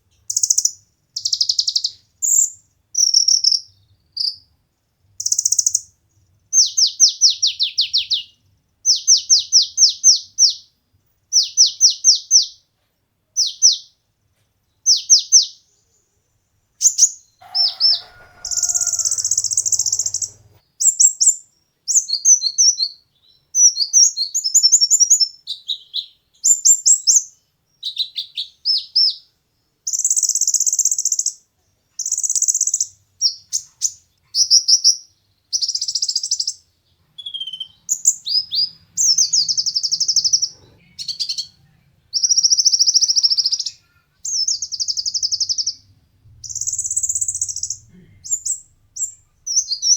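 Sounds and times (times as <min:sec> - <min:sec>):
bird singing chirps and twitters: 0:37.2 - 0:41.6, 0:42.2 - 0:45.9, 0:46.5 - 0:49.9.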